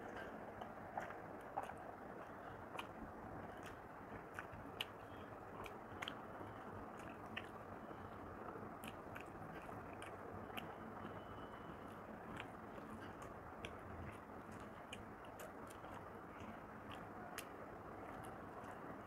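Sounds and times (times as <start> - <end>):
close chewing of food: 0.0 - 19.0
sharp clicks and smacks: 11.8 - 19.0.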